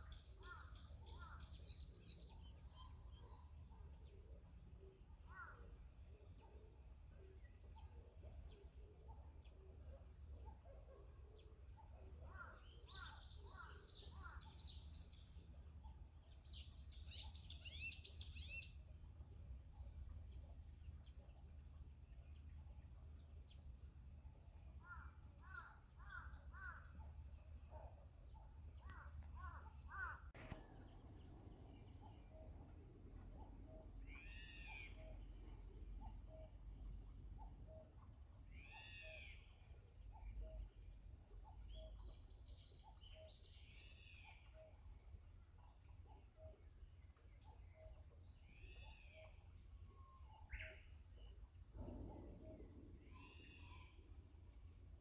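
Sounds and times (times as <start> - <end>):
faint birdsong: 0.0 - 55.0
low steady hum: 14.6 - 38.7, 44.4 - 55.0.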